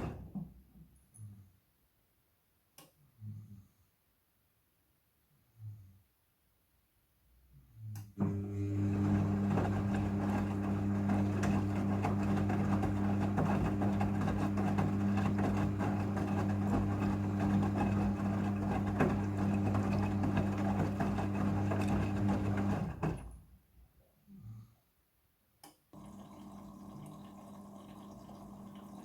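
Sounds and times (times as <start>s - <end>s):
washing machine motor hum: 8.2s - 23.4s, 26.0s - 29.0s.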